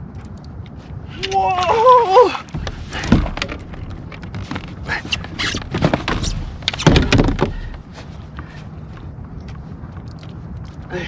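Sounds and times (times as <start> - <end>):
knocks and rustling handling noise: 2.5 - 10.9.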